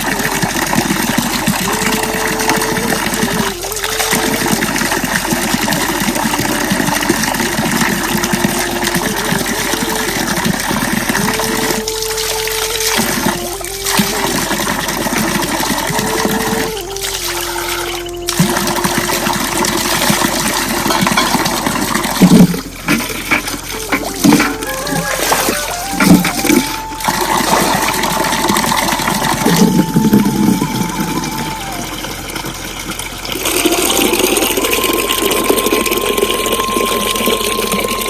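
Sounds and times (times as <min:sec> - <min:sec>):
running water rushing: 0:00.0 - 0:38.0
faint held tone: 0:23.8 - 0:32.8, 0:33.5 - 0:38.0.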